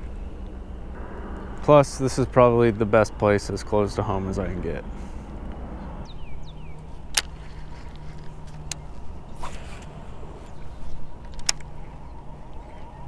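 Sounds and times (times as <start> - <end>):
low outdoor rumble: 0.0 - 13.0
sharp clicks: 11.2 - 11.8.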